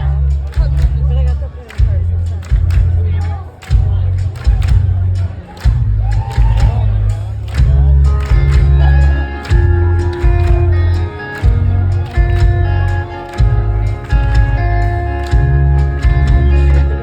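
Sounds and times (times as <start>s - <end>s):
bass and kick drum pulses: 0.0s - 17.0s
sustained electric guitar notes: 7.7s - 17.0s.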